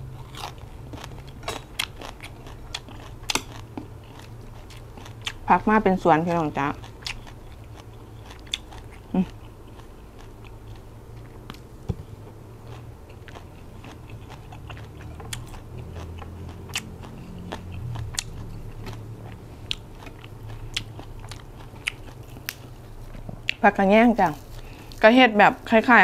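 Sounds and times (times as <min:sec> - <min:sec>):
chewing and crunching: 0:00.0 - 0:26.0
low steady hum: 0:00.0 - 0:26.0.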